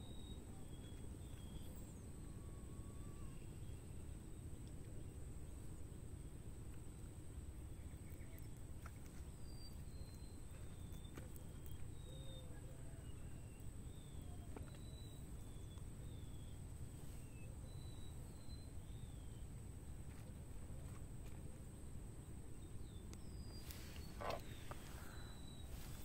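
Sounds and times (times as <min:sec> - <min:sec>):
low outdoor rumble: 0:00.0 - 0:26.0
birds whistling calls: 0:09.4 - 0:19.5, 0:22.8 - 0:26.0.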